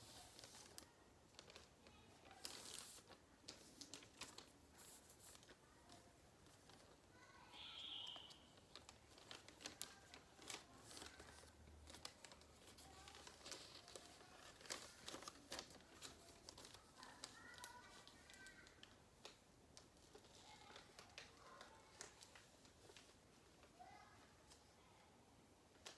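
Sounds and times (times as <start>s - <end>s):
paper being folded and creased: 0.0s - 7.3s, 8.1s - 23.8s
paper crinkles and rustles: 0.0s - 24.7s.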